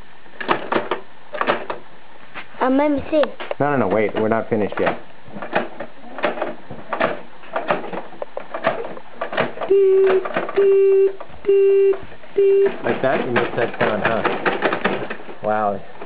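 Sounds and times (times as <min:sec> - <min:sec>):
child imitating reversing beeps: 0:09.7 - 0:12.7.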